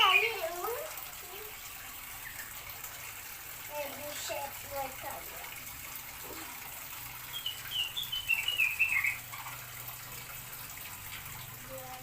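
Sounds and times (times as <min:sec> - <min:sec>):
small bird chirping: 0:07.2 - 0:09.3.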